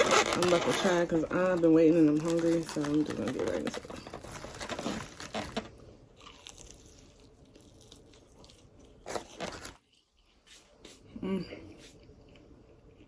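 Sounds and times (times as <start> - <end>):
crunching fried food: 2.3 - 10.0.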